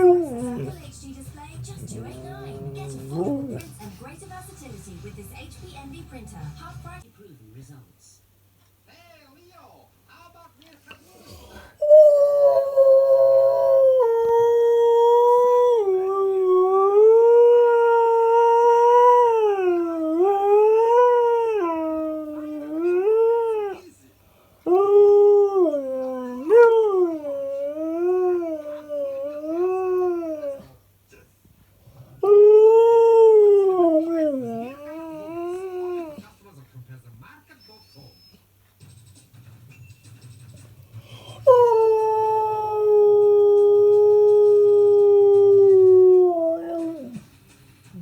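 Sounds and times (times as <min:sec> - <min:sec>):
dog howling: 0:00.0 - 0:00.9, 0:01.6 - 0:03.8, 0:11.6 - 0:23.8, 0:24.7 - 0:30.8, 0:32.2 - 0:36.2, 0:41.4 - 0:47.2.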